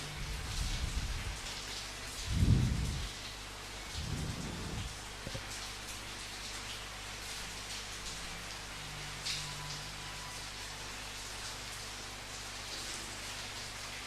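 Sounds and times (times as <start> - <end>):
steady rain falling: 0.0 - 14.0
thunder rumbling: 2.3 - 3.1, 3.9 - 5.0.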